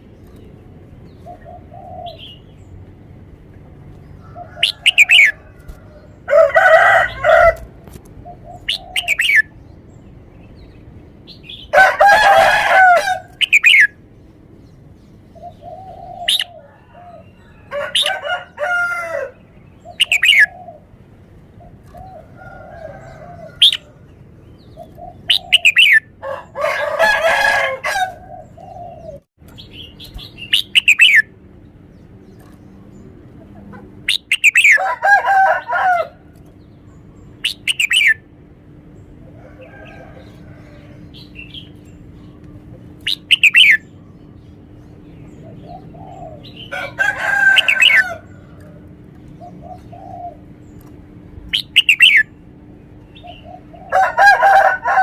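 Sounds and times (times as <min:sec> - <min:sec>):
bird song phrases: 0:00.0 - 0:02.9, 0:03.9 - 0:55.0
high falling bird chirps: 0:29.5 - 0:31.4.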